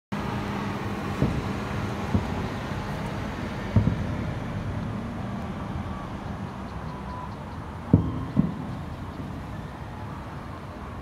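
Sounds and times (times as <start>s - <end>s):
distant fireworks thumps: 1.0s - 5.0s, 7.8s - 9.6s.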